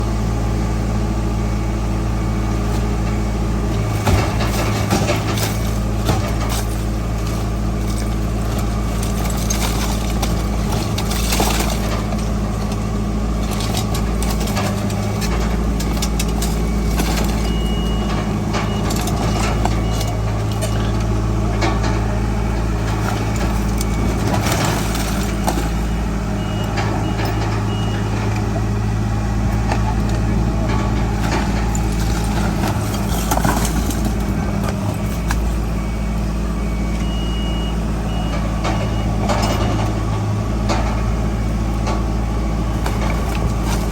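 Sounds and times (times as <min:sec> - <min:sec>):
diesel machinery running: 0:00.0 - 0:43.9
reversing alarm beeping: 0:15.7 - 0:21.1, 0:23.2 - 0:28.4, 0:31.7 - 0:40.0.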